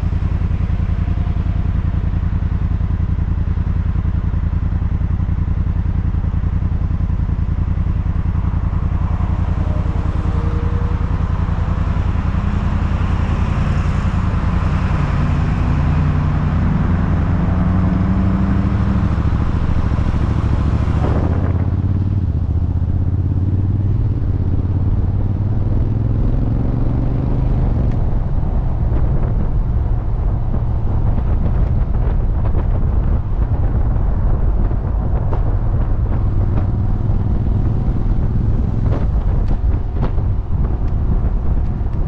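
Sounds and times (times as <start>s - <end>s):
motorcycle engine idling and revving: 0.0s - 42.0s.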